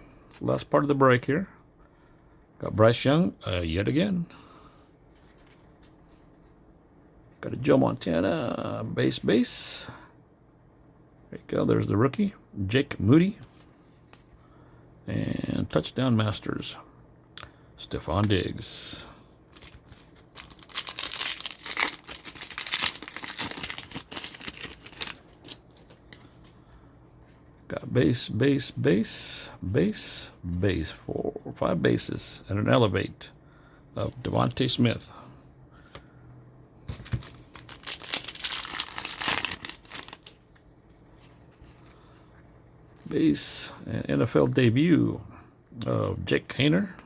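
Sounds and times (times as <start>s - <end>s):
plastic wrapper tearing and crinkling: 19.5s - 25.9s, 37.0s - 40.7s.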